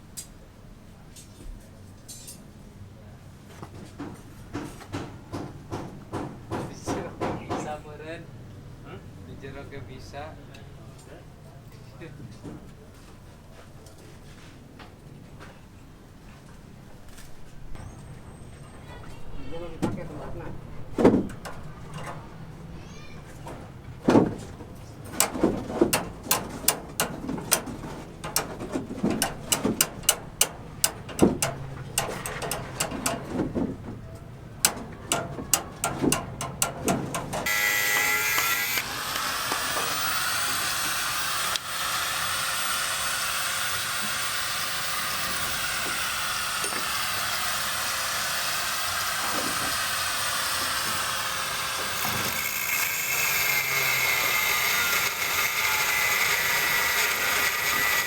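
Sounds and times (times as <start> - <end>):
sharp knocks and clicks: 4.0 - 7.7, 24.1 - 38.5
power tool running: 25.2 - 33.4, 34.6 - 58.0.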